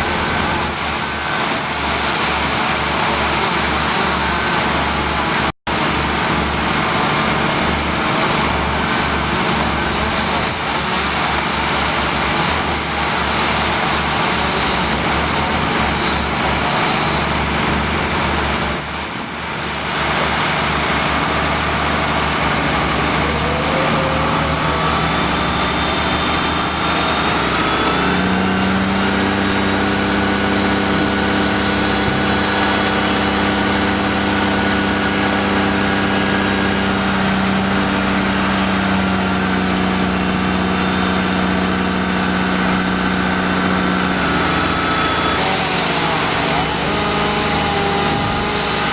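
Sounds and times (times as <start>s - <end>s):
engine machinery running: 0.0s - 48.9s
loud steady engine drone: 0.0s - 48.9s.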